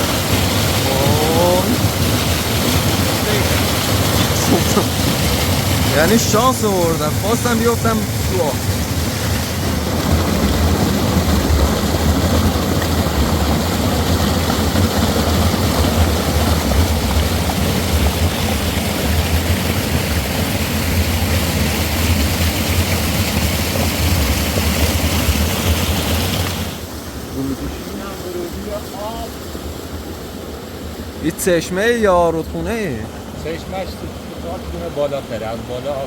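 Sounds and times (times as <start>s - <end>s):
fast-flowing water rushing: 0.0s - 36.0s.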